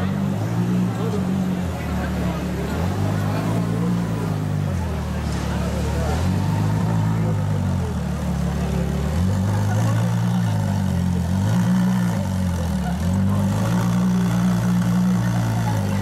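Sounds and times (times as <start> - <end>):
car engine revving low: 0.0 - 16.0.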